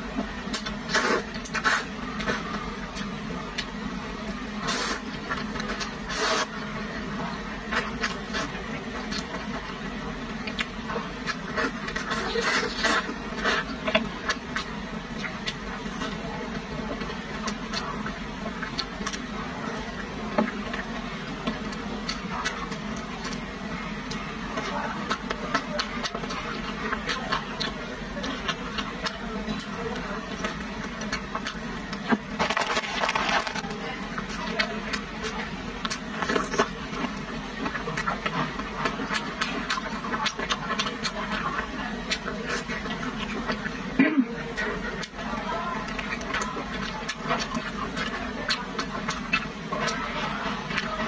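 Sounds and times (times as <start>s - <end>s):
steady low hum: 0.0s - 51.0s
chewing and wet mouth clicks: 45.9s - 50.0s.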